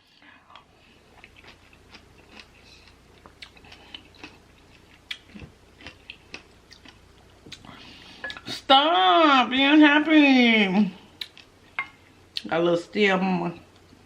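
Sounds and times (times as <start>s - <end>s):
chewing with small crunches: 0.0s - 8.5s, 11.2s - 11.5s.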